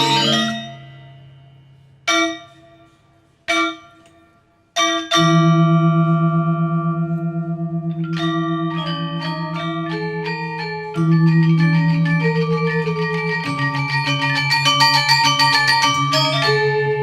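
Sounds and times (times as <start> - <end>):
quick metallic notes: 0.0 - 3.8
bell-like metal notes: 0.0 - 4.1, 4.8 - 17.0.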